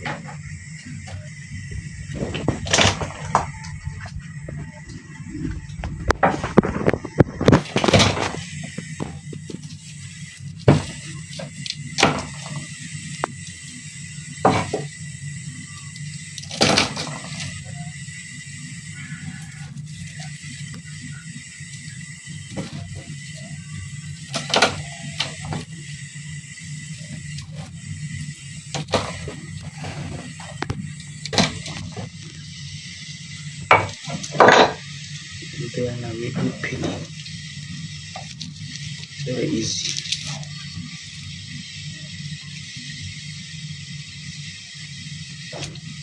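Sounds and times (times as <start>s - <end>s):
low steady hum: 0.0s - 13.6s
steady low hum: 0.0s - 46.0s.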